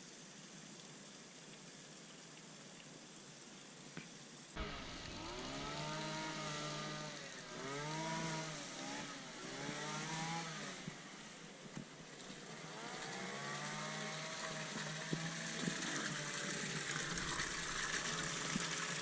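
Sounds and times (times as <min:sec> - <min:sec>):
lawnmower engine revving: 0:04.6 - 0:19.0.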